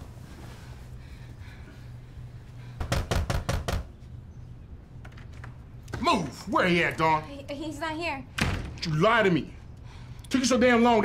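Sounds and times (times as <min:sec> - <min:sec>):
heavy knocking on a door: 0:02.8 - 0:03.9.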